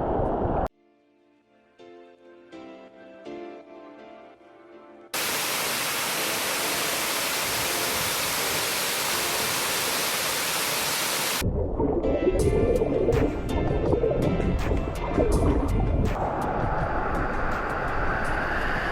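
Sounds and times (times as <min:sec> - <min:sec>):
soft background music: 0:00.7 - 0:05.1, 0:11.4 - 0:18.9
waterfall rushing: 0:05.2 - 0:11.4.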